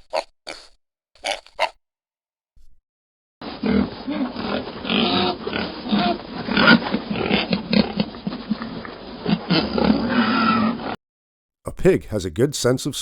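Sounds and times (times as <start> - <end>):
pig grunting and oinking: 0.0 - 1.8, 3.4 - 11.0.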